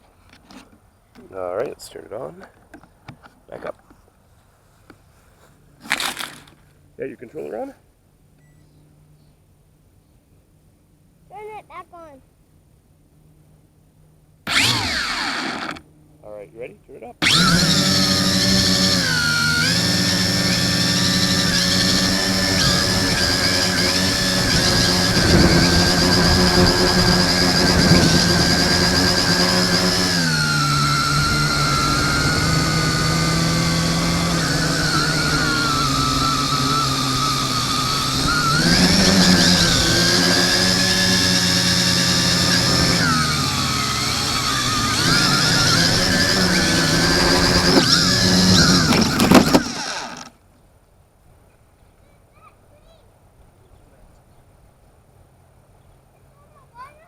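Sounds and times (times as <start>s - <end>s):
drone motors whining: 14.5s - 15.8s, 17.2s - 50.3s.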